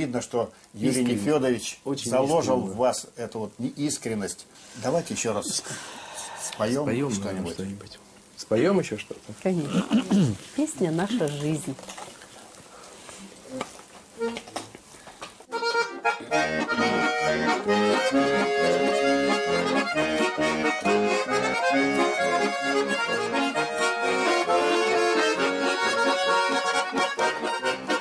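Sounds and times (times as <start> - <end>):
accordion playing folk music: 14.2 - 14.5, 15.4 - 28.0.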